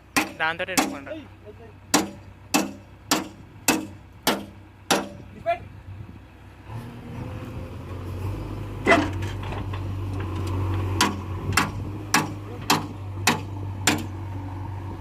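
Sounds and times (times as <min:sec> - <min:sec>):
diesel engine running: 0:00.0 - 0:15.0
hammer on metal: 0:00.2 - 0:01.1, 0:01.9 - 0:05.2, 0:11.0 - 0:14.1.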